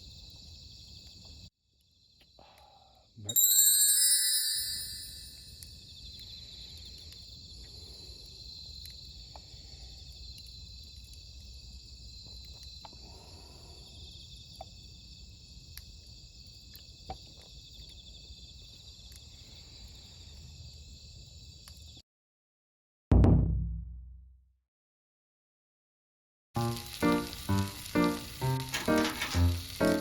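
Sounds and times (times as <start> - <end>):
insects trilling: 5.5 - 22.0, 26.6 - 30.0
faint ticks: 5.6 - 9.5.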